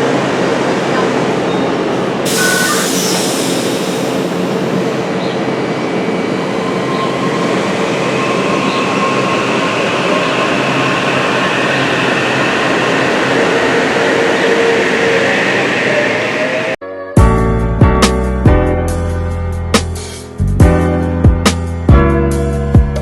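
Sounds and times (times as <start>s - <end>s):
train rumbling on rails: 0.0s - 16.8s.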